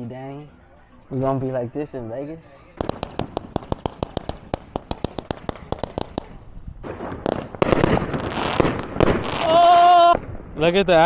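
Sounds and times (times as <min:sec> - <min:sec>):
fireworks crackle and hiss: 0:02.8 - 0:09.7
fireworks cracking: 0:02.8 - 0:09.9.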